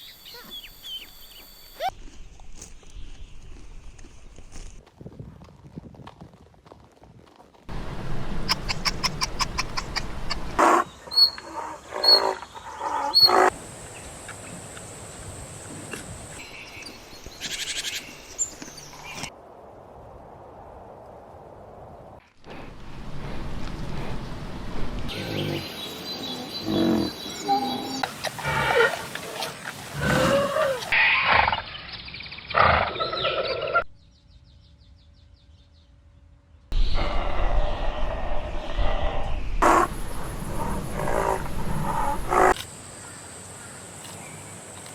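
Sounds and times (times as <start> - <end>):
animal calling: 8.4 - 13.6, 25.1 - 31.7, 38.8 - 42.6
sliding animal calls: 26.6 - 31.6, 40.6 - 42.6.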